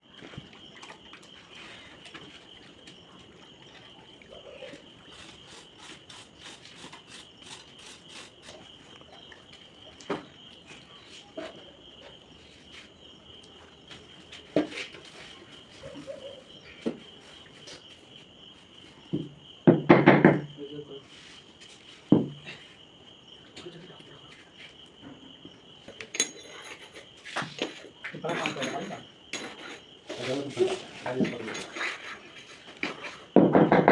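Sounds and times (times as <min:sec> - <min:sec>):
crickets chirring: 0:00.0 - 0:33.9
sharp knocks: 0:19.1 - 0:20.5, 0:33.4 - 0:33.9.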